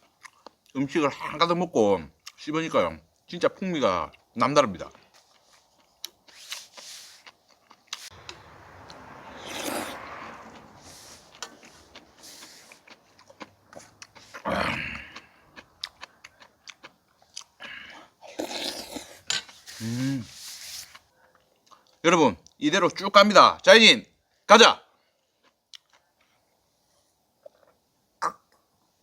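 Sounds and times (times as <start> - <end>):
person chewing food: 0.0 - 0.7, 5.0 - 22.0, 25.3 - 26.6.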